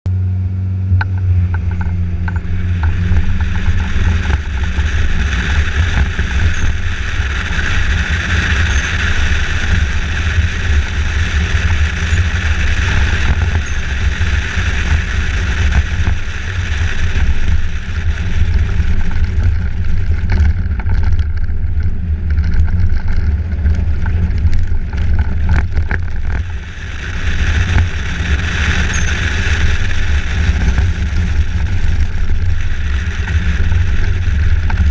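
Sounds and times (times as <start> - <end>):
vehicle rumble: 0.1 - 34.9
rushing noise: 1.0 - 34.9.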